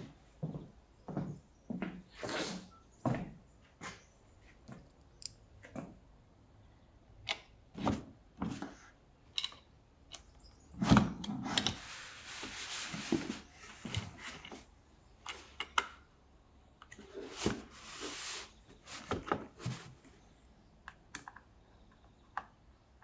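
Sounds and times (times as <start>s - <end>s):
rustling scrape: 10.8s - 14.7s, 17.1s - 20.0s.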